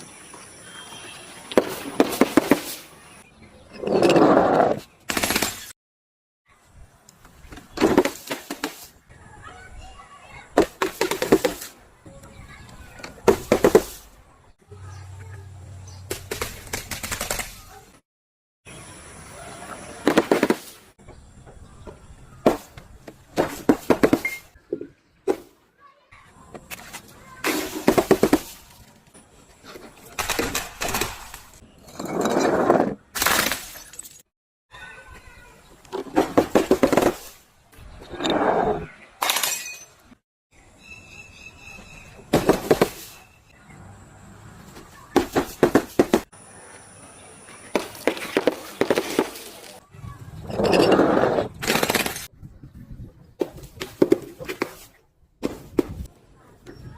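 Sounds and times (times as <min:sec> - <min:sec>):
glass crunching and shattering: 0:33.2 - 0:34.2, 0:39.2 - 0:40.0
breaking glass cracks and clinks: 0:33.2 - 0:34.3, 0:39.2 - 0:40.0.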